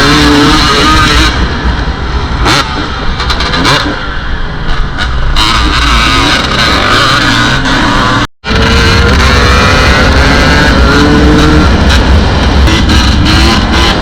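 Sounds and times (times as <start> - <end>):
dirt bike engine revving: 0.0 - 1.7, 5.3 - 14.0
wind rumble on microphone: 8.4 - 14.0.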